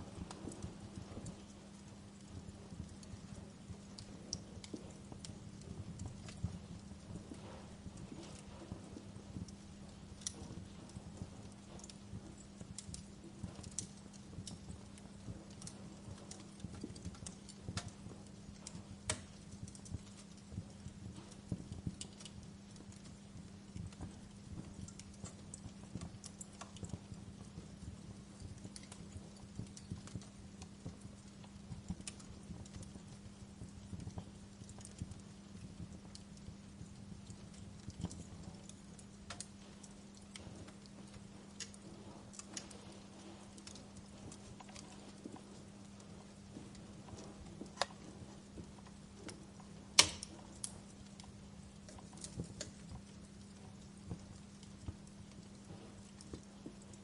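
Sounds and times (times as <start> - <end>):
faint low hum: 0.0 - 57.0
low rumble of flames: 0.0 - 57.0
wood fire crackling and popping: 0.0 - 57.0.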